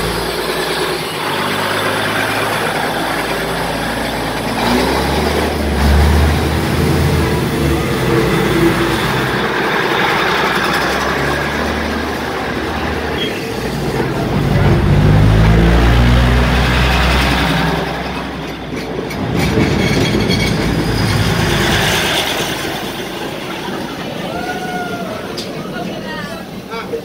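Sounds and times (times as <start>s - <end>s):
train carriages rolling past: 0.0s - 27.0s.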